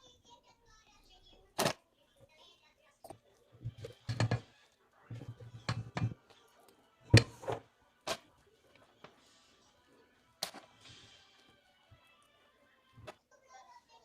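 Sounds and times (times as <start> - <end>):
kitchen knocks and clicks: 3.6 - 6.3, 7.1 - 8.2.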